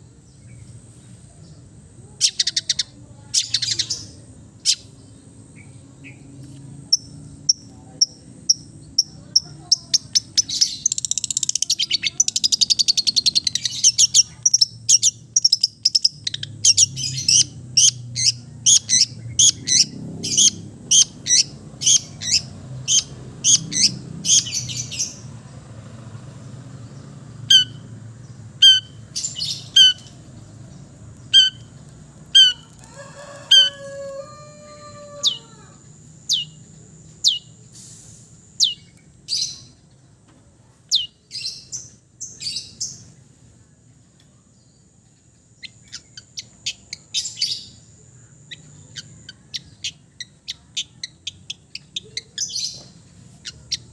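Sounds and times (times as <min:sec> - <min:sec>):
shrike singing: 0:27.3 - 0:37.6.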